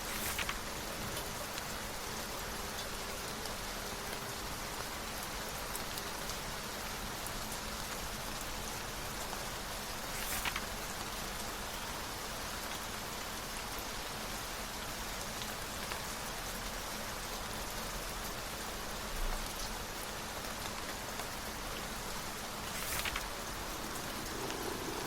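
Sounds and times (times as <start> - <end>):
sharp crackle: 0.0 - 1.3, 10.0 - 10.9, 22.5 - 25.0
steady rain: 0.0 - 25.0.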